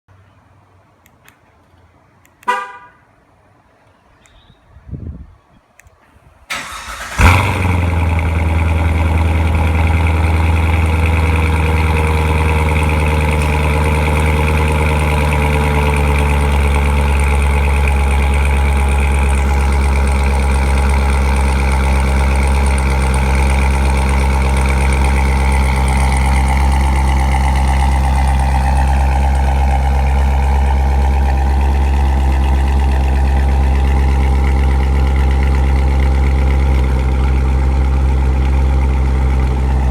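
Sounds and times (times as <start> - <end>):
car engine cold start flare: 6.5 - 38.2
car engine idling: 6.5 - 39.9.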